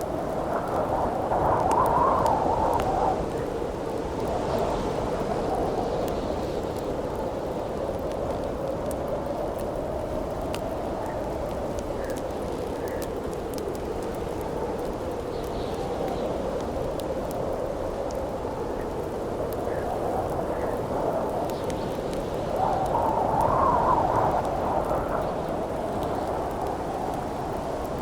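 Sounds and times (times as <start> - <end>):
campfire crackling and popping: 0.0 - 28.0
wind howling: 0.0 - 28.0.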